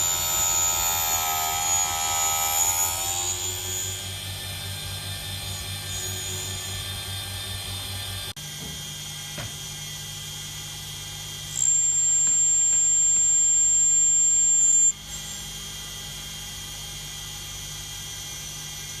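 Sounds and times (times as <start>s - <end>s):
high-pitched cutting squeal: 0.0s - 8.2s, 11.6s - 15.4s
small lathe motor running: 0.0s - 19.0s.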